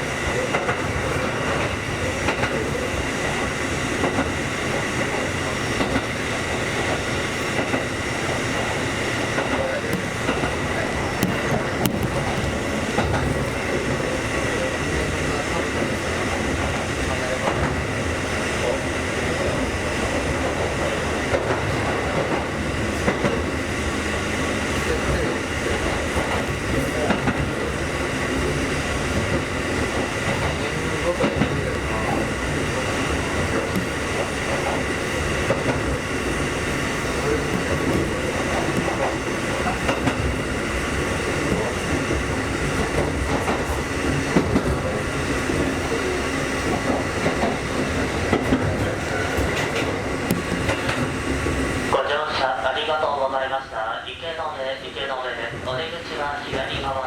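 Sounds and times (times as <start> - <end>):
train rumble and hiss: 0.0 - 57.0
wheels clicking over rail joints: 24.7 - 45.9, 46.6 - 51.6.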